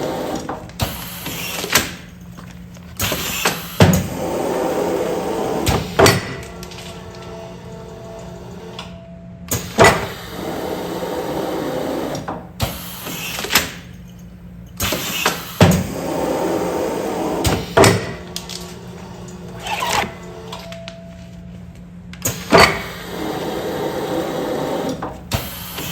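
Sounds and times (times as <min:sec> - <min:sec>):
machine running: 0:00.0 - 0:01.7, 0:03.0 - 0:13.5, 0:14.8 - 0:21.3, 0:22.2 - 0:25.9
low machine hum: 0:00.0 - 0:25.9
sealing machine clunks: 0:02.8 - 0:04.2, 0:05.6 - 0:07.3, 0:08.8 - 0:10.3, 0:17.4 - 0:21.0.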